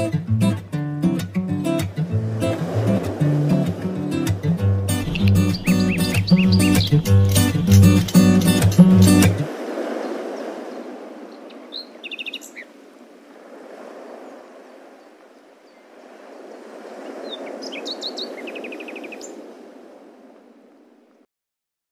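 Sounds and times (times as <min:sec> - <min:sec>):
steady rushing noise: 0:02.1 - 0:09.7
birds chirping: 0:03.2 - 0:12.7, 0:16.9 - 0:19.3.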